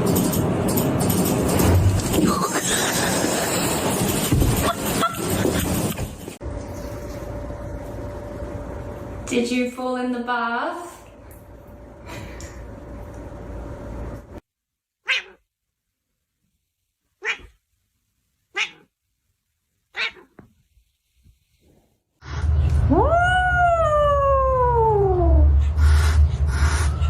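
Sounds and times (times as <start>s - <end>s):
cat meowing: 15.0s - 15.4s, 17.2s - 17.6s, 18.5s - 18.9s, 19.9s - 20.4s
loud low rumble: 22.2s - 27.0s.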